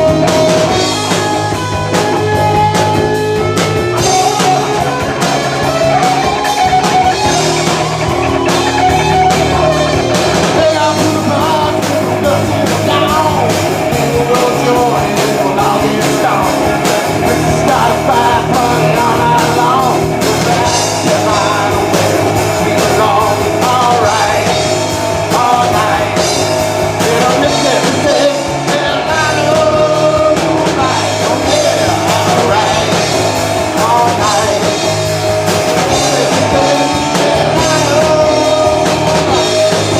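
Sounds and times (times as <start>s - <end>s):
drum kit: 0.0s - 39.9s
electric guitar: 0.0s - 39.9s
person singing: 4.0s - 39.9s.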